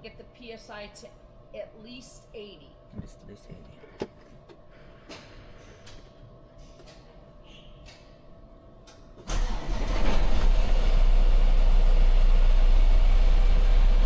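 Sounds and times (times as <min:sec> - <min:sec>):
diesel truck engine starting: 0:09.3 - 0:14.0.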